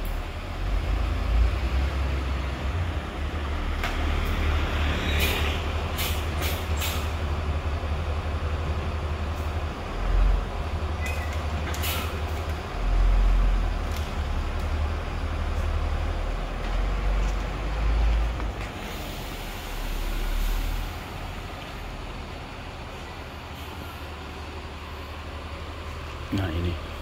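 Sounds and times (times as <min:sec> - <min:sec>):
bus diesel engine rumbling: 0:00.0 - 0:27.0
air brake hisses: 0:05.1 - 0:07.1.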